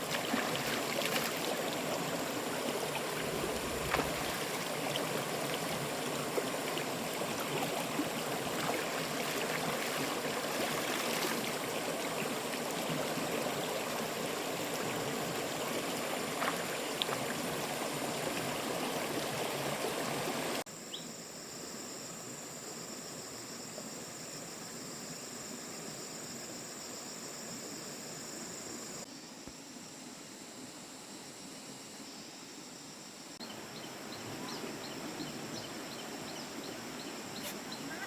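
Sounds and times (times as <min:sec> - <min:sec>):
water rushing: 0:00.0 - 0:20.6.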